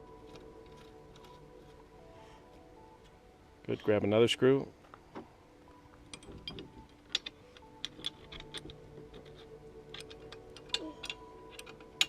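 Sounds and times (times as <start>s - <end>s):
small metal clicks and ticks: 0.1s - 1.8s, 6.0s - 12.0s.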